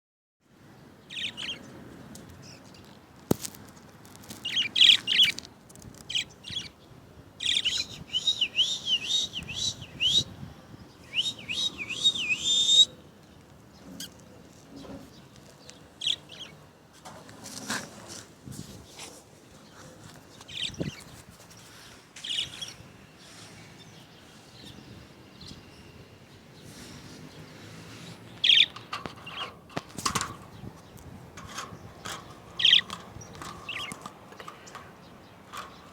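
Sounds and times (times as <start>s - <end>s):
budgerigars chirping: 4.4s - 5.4s, 7.4s - 10.3s, 28.4s - 29.5s, 32.0s - 34.8s.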